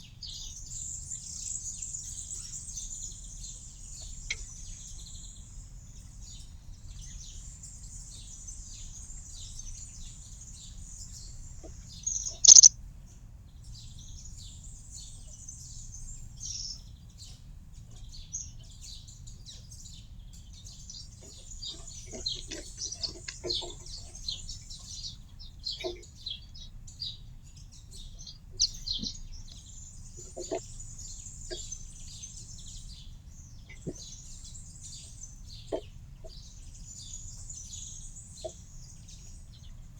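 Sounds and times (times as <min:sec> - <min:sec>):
songbirds trilling and chirping: 0:00.0 - 0:39.9
sharp click: 0:12.2 - 0:12.7.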